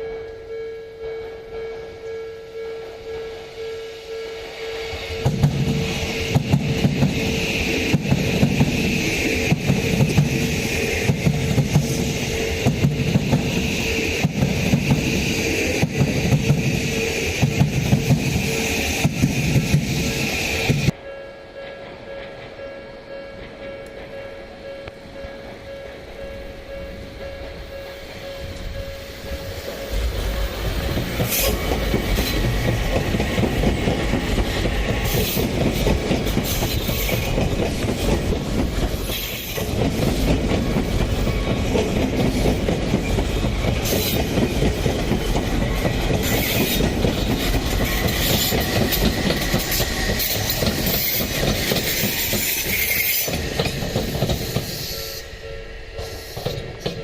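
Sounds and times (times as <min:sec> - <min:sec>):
crossing bell ringing: 0:00.0 - 0:36.4, 0:52.3 - 0:57.0
train running rumble: 0:00.5 - 0:57.0
wheel squeal: 0:46.2 - 0:55.4.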